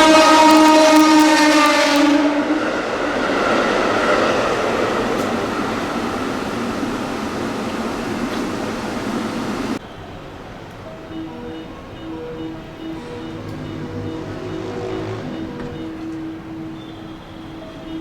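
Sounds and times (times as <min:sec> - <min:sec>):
train horn: 0:00.0 - 0:03.1, 0:12.0 - 0:18.0
train rushing past: 0:00.0 - 0:09.8, 0:11.3 - 0:17.9.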